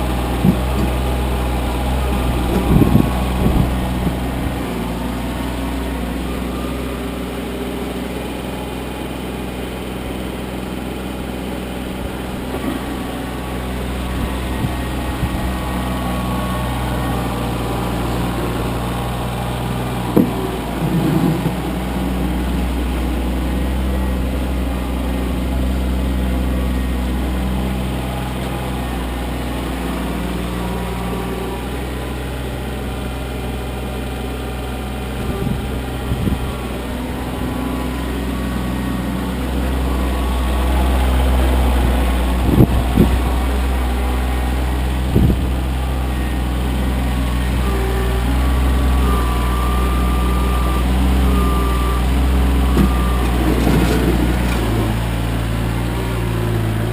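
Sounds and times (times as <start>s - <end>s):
tractor diesel engine running: 0.0s - 56.9s
short clunks: 0.3s - 1.2s, 19.9s - 22.0s, 52.6s - 54.9s.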